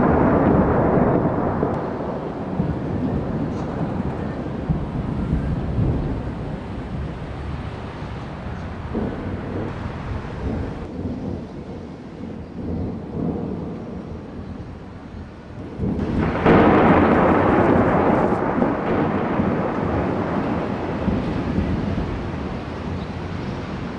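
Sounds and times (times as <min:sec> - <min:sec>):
rain: 0:00.0 - 0:23.9
thunder rumbling: 0:00.0 - 0:23.9.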